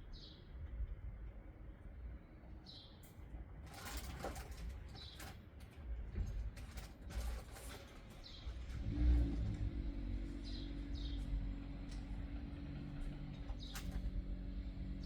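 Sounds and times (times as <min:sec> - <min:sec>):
low motor-like hum: 0:08.6 - 0:15.0.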